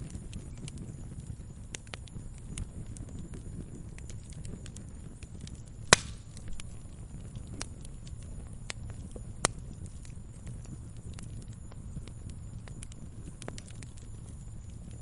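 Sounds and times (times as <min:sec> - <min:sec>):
campfire rumble and crackles: 0:00.0 - 0:15.0
loud sharp fire pop: 0:05.9 - 0:06.4.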